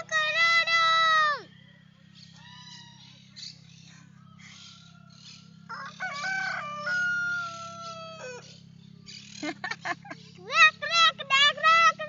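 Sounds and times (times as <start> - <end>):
rooster crowing: 4.0 - 8.7.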